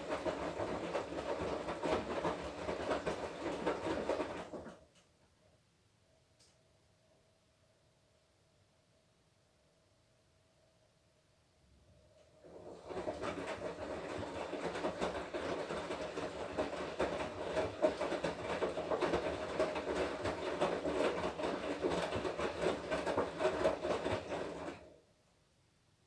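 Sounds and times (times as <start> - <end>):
washing machine drum tumbling: 12.4 - 24.9.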